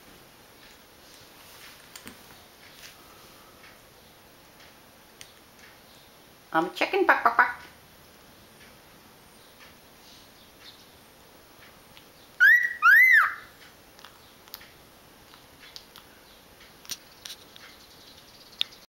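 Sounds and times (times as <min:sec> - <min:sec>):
cockatiel whistled calls: 0:12.4 - 0:13.6.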